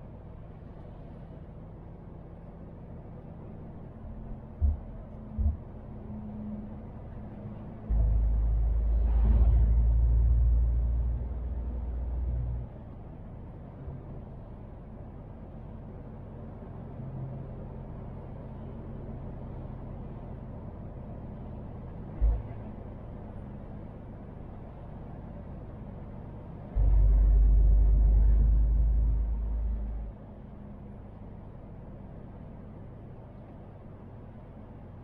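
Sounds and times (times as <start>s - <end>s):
diesel truck engine running: 0.0s - 35.0s
short low thumps: 4.0s - 6.2s, 7.8s - 12.6s, 22.2s - 22.7s, 26.7s - 30.1s.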